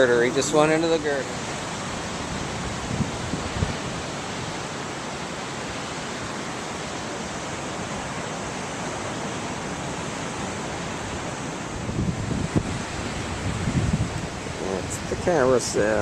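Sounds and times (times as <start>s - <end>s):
ocean surf rushing: 0.0s - 16.0s.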